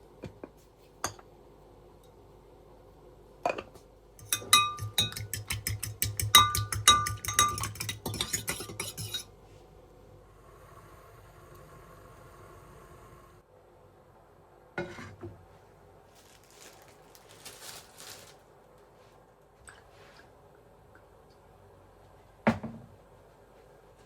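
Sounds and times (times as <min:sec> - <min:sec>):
utensil clinking against dish: 0:04.2 - 0:09.3.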